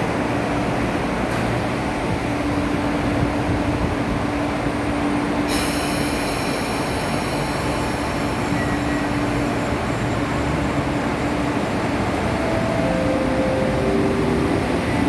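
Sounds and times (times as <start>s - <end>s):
electric train pulling out: 5.5s - 15.0s
high multi-tone whine: 11.0s - 15.0s.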